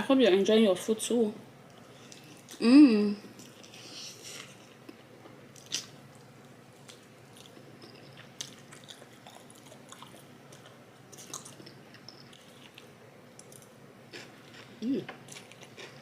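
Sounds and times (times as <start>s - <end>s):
person chewing food: 3.4s - 16.0s.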